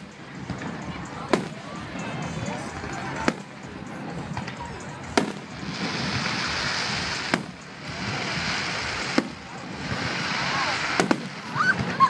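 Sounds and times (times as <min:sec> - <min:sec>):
steady hiss: 0:00.0 - 0:12.0
fireworks shells bursting: 0:04.3 - 0:12.0.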